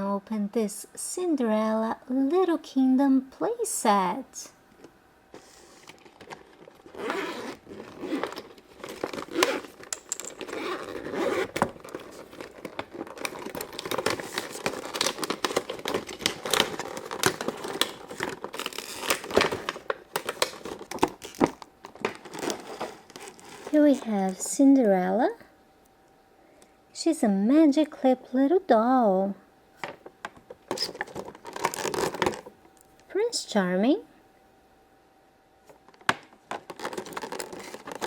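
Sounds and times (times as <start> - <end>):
packaging crinkling and tearing: 5.4 - 24.0, 30.6 - 32.9, 35.9 - 38.0.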